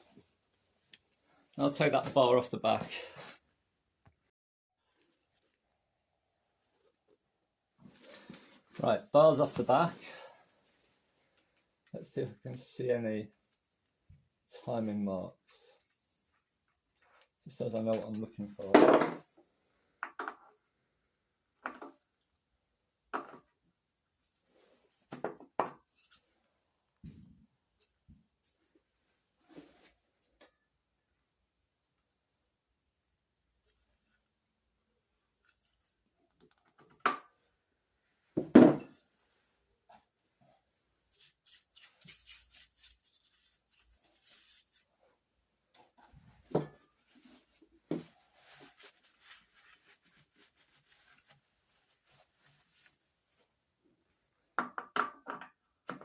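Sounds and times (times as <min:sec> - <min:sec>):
metal knocks on workbench: 0:38.4 - 0:38.9
light rustling and scraping: 0:45.8 - 0:53.6.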